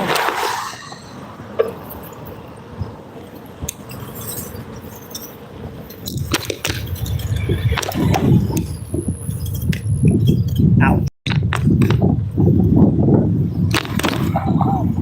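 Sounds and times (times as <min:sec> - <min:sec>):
wind on microphone: 0:00.0 - 0:15.0
bicycle clicking and rattling: 0:01.5 - 0:10.7.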